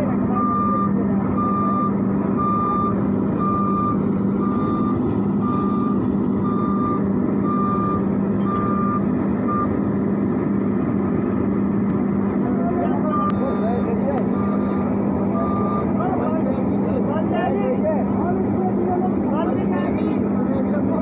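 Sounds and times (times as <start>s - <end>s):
engine drone: 0.0s - 21.0s
reversing alarm beeping: 0.3s - 9.8s, 13.0s - 16.9s.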